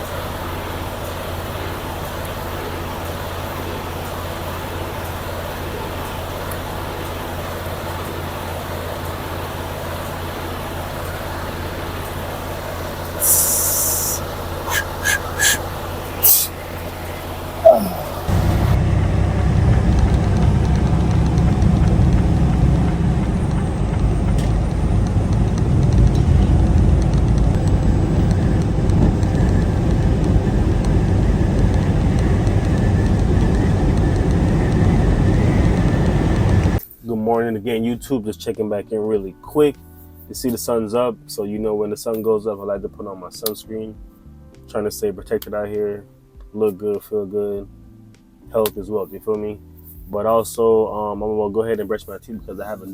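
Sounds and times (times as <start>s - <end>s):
diesel truck engine idling: 0.0s - 36.8s
air brake hiss: 13.2s - 16.6s.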